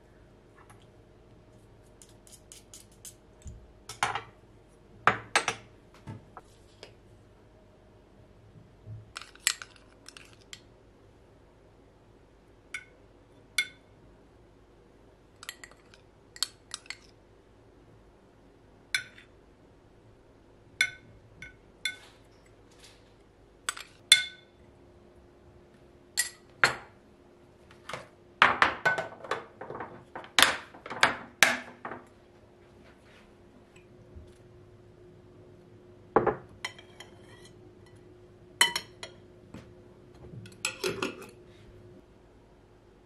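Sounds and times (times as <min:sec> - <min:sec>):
dishes clinking: 0:38.6 - 0:39.2.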